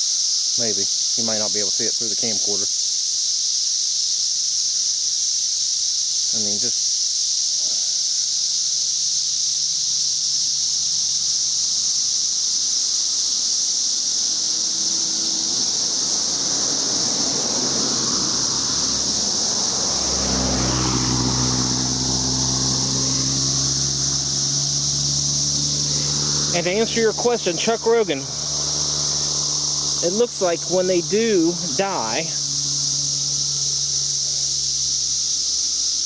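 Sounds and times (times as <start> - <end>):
cicadas chorus: 0.0 - 36.0
low engine hum: 13.9 - 35.6.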